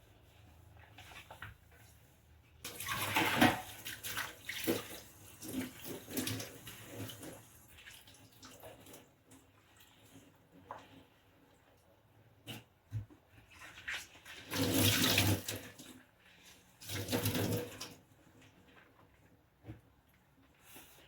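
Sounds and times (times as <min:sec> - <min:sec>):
tap water running and splashing: 0:02.6 - 0:11.0, 0:12.5 - 0:18.1.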